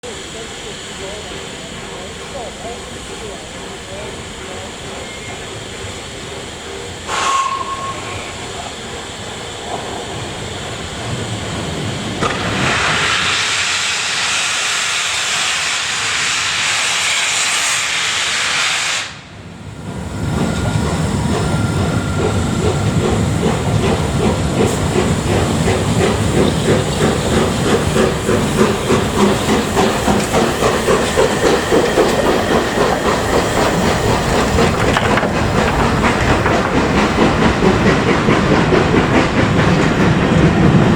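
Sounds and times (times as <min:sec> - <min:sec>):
steam hissing: 0:00.0 - 0:40.9
steam locomotive chuffing: 0:00.0 - 0:40.9
steam locomotive whistle: 0:07.1 - 0:08.5.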